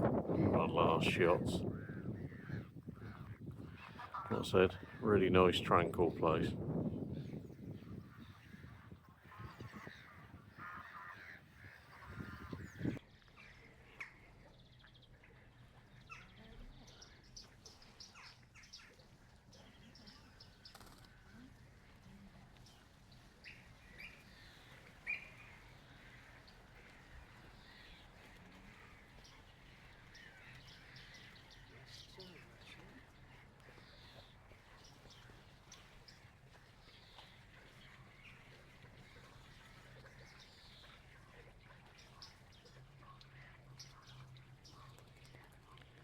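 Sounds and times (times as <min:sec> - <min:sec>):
geese honking: 0:00.0 - 0:06.6, 0:07.8 - 0:13.0.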